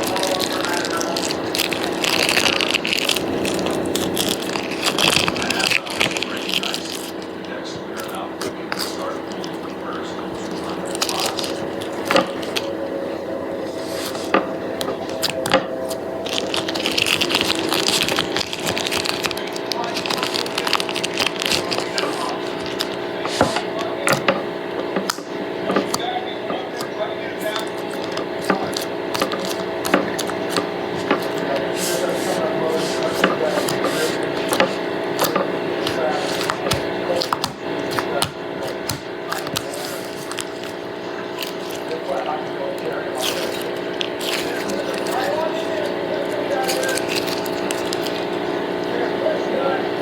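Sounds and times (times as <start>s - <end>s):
steady background drone: 0.0s - 50.0s
steady background hum: 0.0s - 50.0s
scissors cutting foam: 26.8s - 42.0s.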